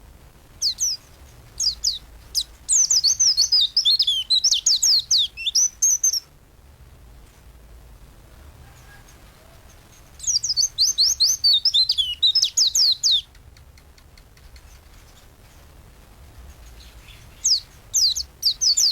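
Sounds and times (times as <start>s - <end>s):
bird singing high twittering: 0.6s - 6.3s, 10.2s - 13.4s, 16.7s - 18.9s.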